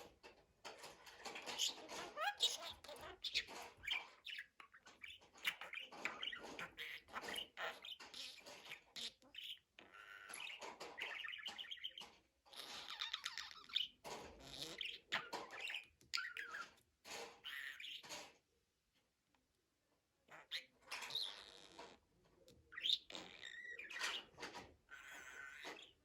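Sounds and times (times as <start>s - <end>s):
budgerigar warbling and chattering: 1.4s - 16.7s, 22.7s - 26.0s.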